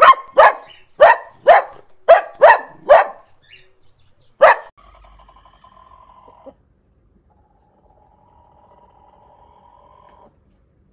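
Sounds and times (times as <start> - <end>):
small dog barking: 0.0 - 3.4, 4.4 - 4.7.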